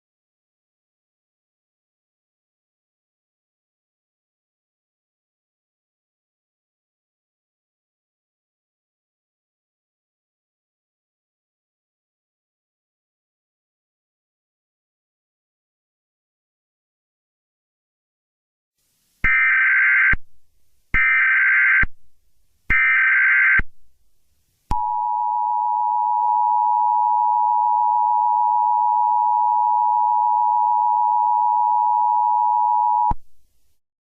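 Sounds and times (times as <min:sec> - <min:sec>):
two-tone alarm: 0:19.3 - 0:20.2, 0:21.0 - 0:21.9, 0:22.7 - 0:23.6, 0:24.7 - 0:33.2.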